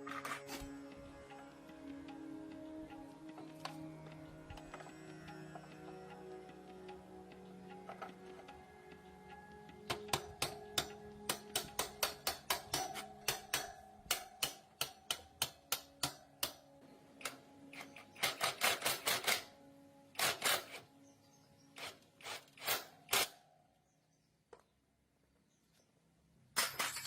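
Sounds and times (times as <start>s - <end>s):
faint steady tones: 0.0s - 24.2s
sharp clicks: 9.8s - 16.6s, 17.2s - 19.5s.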